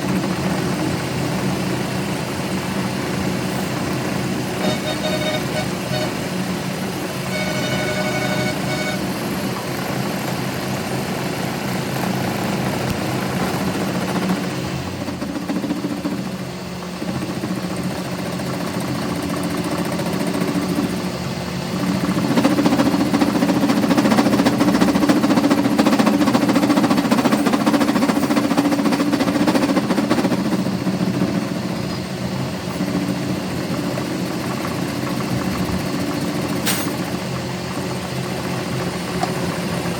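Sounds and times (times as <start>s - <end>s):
machine humming: 0.0s - 9.7s.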